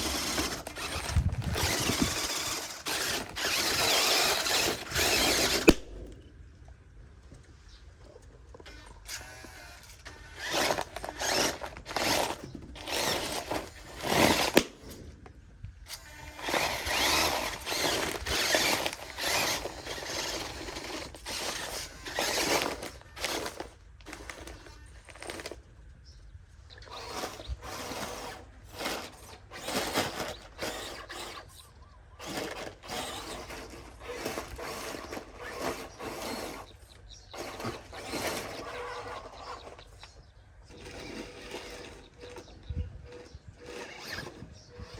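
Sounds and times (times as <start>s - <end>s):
toy truck motor whirring: 0.0s - 6.2s, 8.5s - 15.2s, 15.8s - 25.7s, 26.7s - 44.9s.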